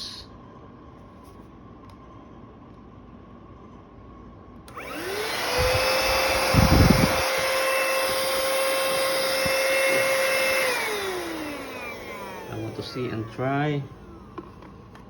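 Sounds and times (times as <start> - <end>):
handheld vacuum cleaner whining: 4.7 - 15.0.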